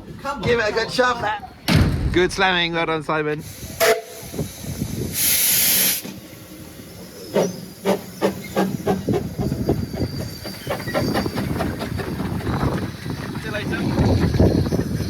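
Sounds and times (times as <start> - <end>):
steam hissing: 3.4 - 13.2
steam locomotive exhaust beats: 3.4 - 15.0.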